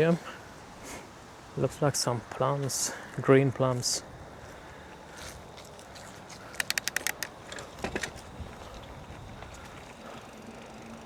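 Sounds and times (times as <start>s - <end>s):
road and wind noise: 4.0s - 11.0s
bicycle freewheel ticking: 6.6s - 7.3s, 8.8s - 11.0s.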